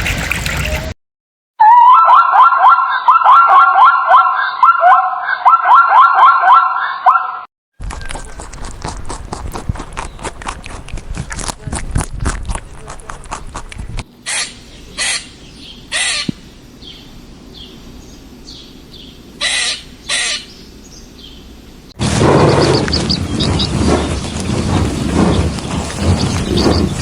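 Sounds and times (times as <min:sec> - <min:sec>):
small birds chirping: 0:09.7 - 0:11.0, 0:14.2 - 0:27.0
crow cawing: 0:19.4 - 0:20.5
low rumble: 0:22.0 - 0:27.0.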